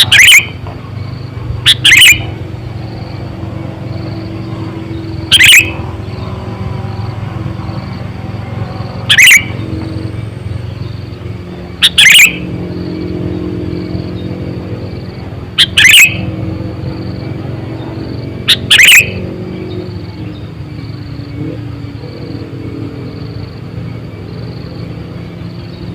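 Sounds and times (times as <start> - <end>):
bulbul calling: 0.0 - 3.2, 3.8 - 6.4, 8.8 - 13.4, 14.0 - 22.7
steady low hum: 0.0 - 25.9.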